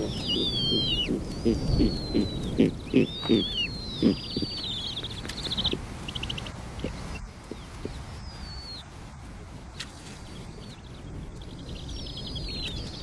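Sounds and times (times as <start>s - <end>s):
high-pitched bird calls: 0.0s - 8.9s.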